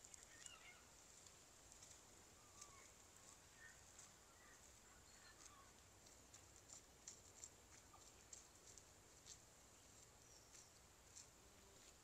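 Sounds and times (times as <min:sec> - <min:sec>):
soft bird chirps: 0:00.1 - 0:00.9, 0:09.7 - 0:10.9.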